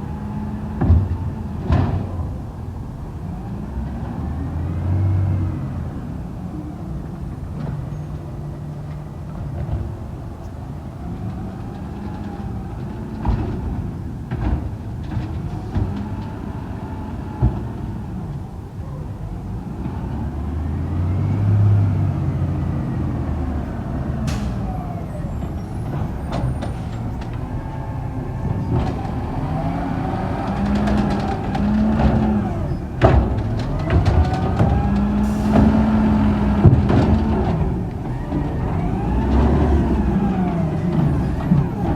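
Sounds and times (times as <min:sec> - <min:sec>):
garbage truck diesel engine revving: 0:00.0 - 0:09.2, 0:09.8 - 0:41.9
sharp knocks and clanks: 0:28.4 - 0:41.9.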